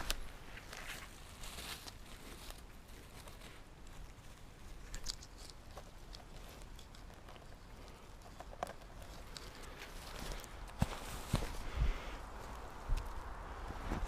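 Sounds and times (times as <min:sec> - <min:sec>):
twig snapping: 0:00.0 - 0:02.0, 0:04.8 - 0:07.6
footsteps on dry leaves and twigs: 0:00.0 - 0:08.0, 0:08.9 - 0:14.0.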